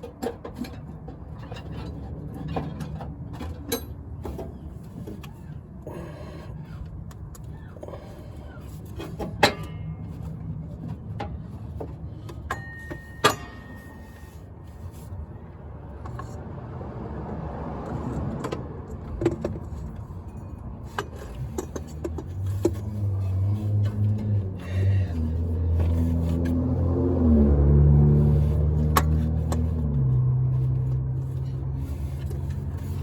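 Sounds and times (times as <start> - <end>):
hand tools clinking on metal: 12.4 - 14.3.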